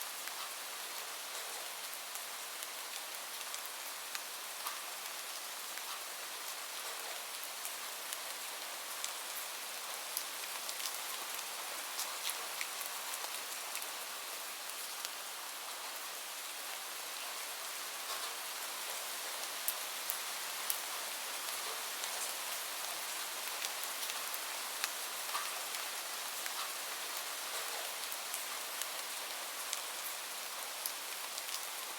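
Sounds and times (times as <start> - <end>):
steady rain hissing: 0.0 - 31.9.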